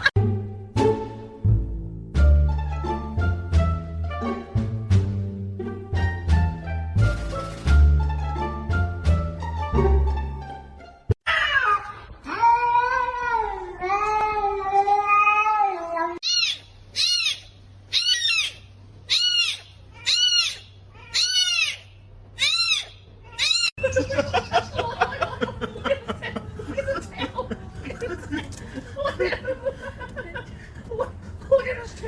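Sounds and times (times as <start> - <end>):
cat meowing: 11.3 - 21.8, 22.4 - 23.7
cat yowling: 11.3 - 23.7.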